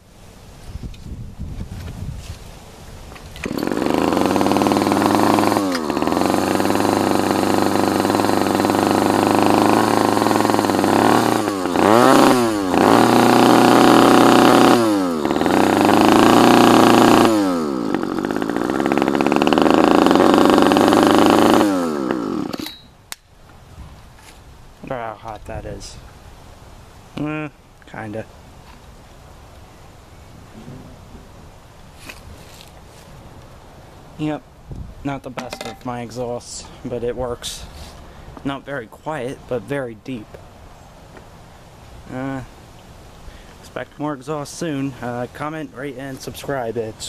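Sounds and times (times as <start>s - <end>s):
two-stroke engine revving: 3.4s - 22.8s.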